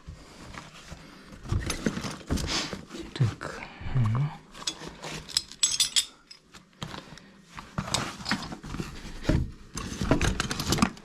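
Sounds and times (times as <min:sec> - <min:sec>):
metal plumbing parts clinking: 0:04.6 - 0:06.5, 0:09.2 - 0:11.0.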